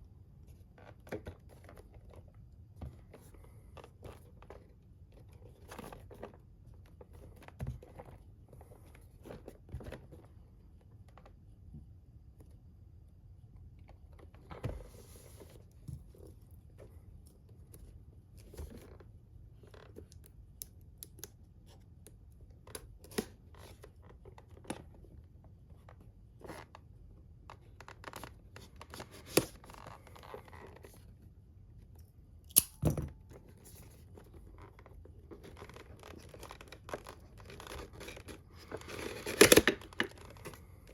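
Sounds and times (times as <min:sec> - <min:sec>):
plastic packaging clicks and rustles: 0:34.1 - 0:40.9.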